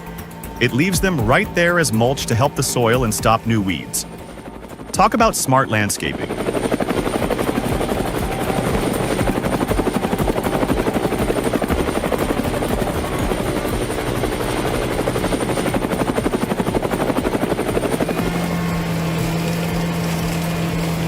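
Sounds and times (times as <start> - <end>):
steady machine hum: 0.0 - 21.0
mower chopping grass: 6.7 - 21.0.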